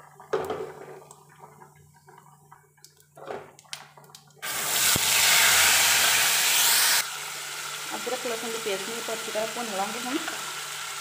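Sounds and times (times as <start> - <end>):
paste sizzling in hot oil: 4.4 - 11.0.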